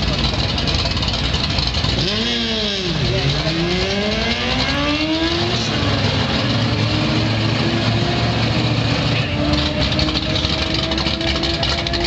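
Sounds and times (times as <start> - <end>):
race car engine idling: 0.0 - 12.0.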